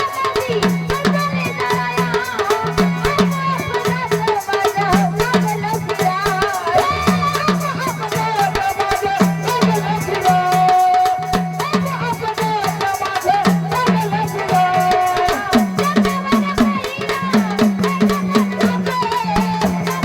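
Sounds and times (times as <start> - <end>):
rattling hand percussion: 0.0 - 20.0
woman singing: 0.0 - 20.0
deep drum beat: 6.6 - 8.4.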